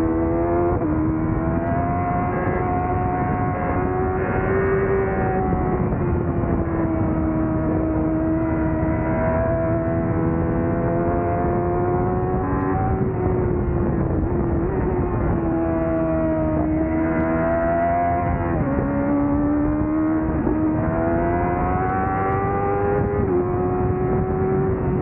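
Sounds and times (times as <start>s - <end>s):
motorcycle engine revving high: 0.0s - 25.0s.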